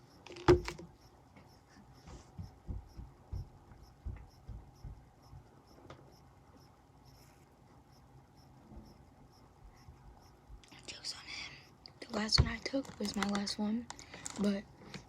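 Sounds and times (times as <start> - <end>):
soft dull thumps: 0.4 - 6.0.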